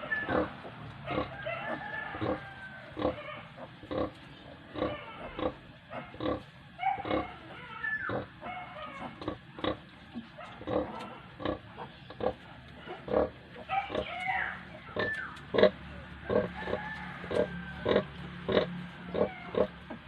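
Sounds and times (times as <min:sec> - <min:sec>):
piglets squealing: 0:00.0 - 0:09.9, 0:10.6 - 0:19.8
sow grunting: 0:00.0 - 0:20.0.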